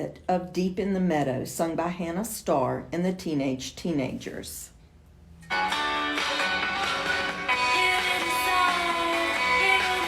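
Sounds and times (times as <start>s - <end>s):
guitar: 5.4s - 10.0s
person singing: 6.2s - 10.0s.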